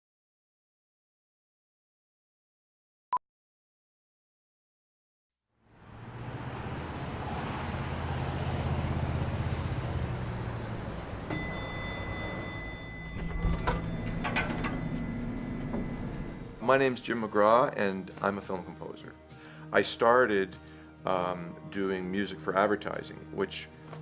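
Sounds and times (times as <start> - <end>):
low hum: 9.6 - 17.0
high steady tone: 11.2 - 17.0.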